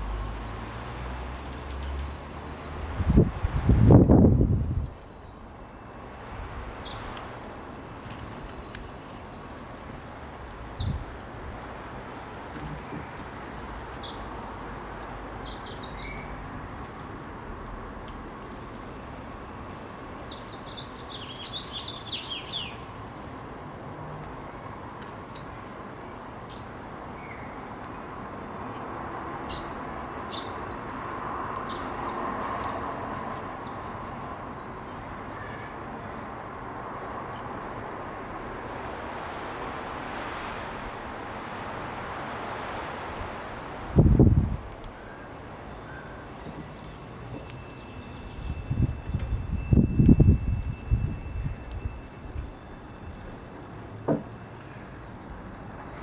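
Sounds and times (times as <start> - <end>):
outdoor background hiss: 0.0 - 56.0
songbirds chirping: 4.4 - 11.3, 11.9 - 23.0, 28.6 - 37.7, 44.8 - 56.0
birds chirping: 8.2 - 9.9, 12.0 - 16.8.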